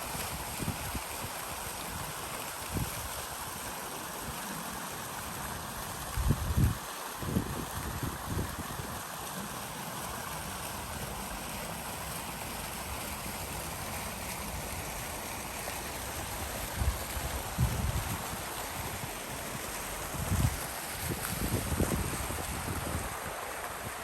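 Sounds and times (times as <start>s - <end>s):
fountain water splashing: 0.0s - 24.0s
wind buffeting microphone: 6.1s - 9.0s, 16.6s - 19.2s, 20.0s - 24.0s.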